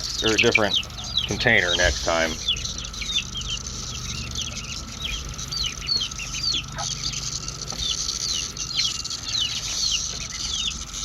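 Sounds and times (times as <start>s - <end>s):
chickens peeping and clucking: 0.0s - 11.0s.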